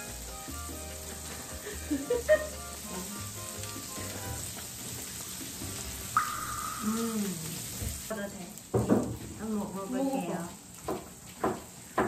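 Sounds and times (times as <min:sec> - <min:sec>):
light background music: 0:00.0 - 0:06.8
patties sizzling in oil: 0:00.0 - 0:12.0.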